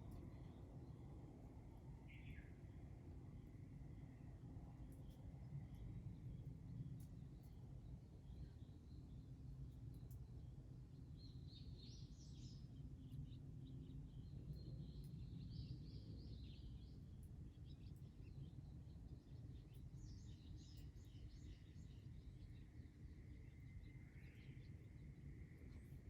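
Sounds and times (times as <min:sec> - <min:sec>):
faint bird chirping: 0:02.1 - 0:02.7, 0:11.0 - 0:26.0.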